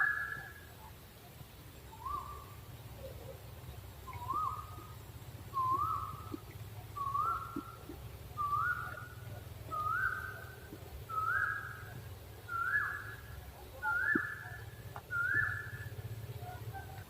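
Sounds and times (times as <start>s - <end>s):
owl whistled calls: 0.0s - 0.6s, 1.9s - 2.6s, 4.0s - 17.0s.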